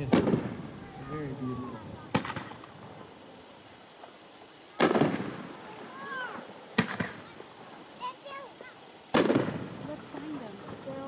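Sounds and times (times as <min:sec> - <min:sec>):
fireworks booming: 0:00.0 - 0:03.3, 0:04.7 - 0:07.8, 0:09.1 - 0:11.0
fireworks cracking: 0:00.0 - 0:11.0
faint spectator voices: 0:00.7 - 0:02.6.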